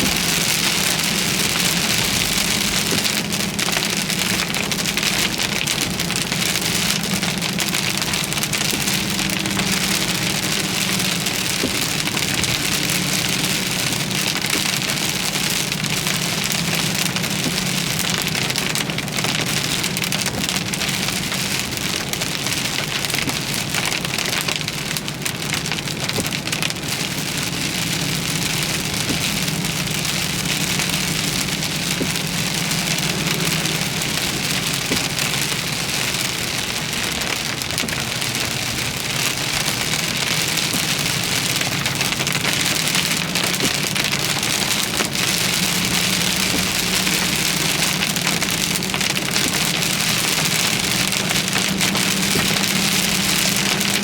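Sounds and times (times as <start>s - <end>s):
heavy rain on a vehicle: 0.0s - 54.0s.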